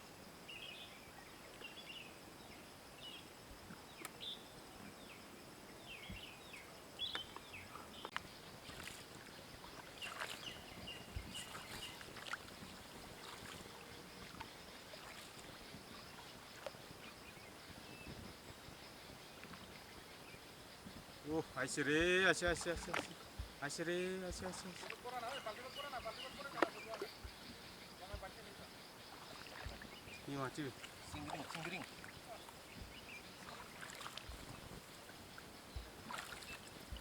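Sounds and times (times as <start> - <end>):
light water splashes: 7.0 - 19.8, 20.9 - 37.0.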